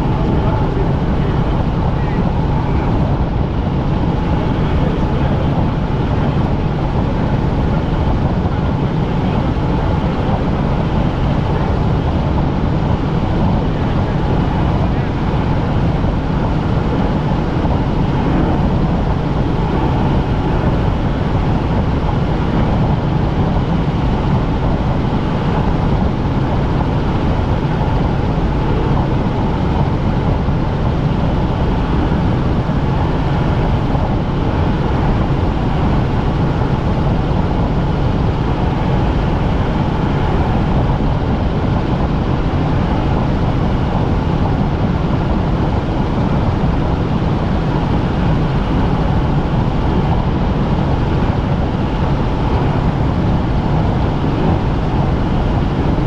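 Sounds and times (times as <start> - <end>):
helicopter cabin drone: 0.0 - 56.0.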